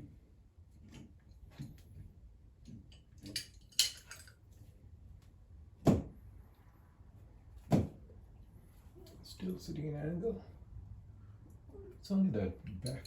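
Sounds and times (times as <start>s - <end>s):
metallic clinks and knocks: 2.9s - 4.4s.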